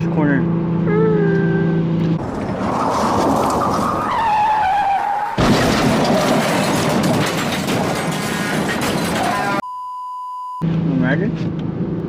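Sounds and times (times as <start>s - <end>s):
car engine running hard: 0.0s - 2.5s
tyres skidding on wet road: 2.2s - 8.8s.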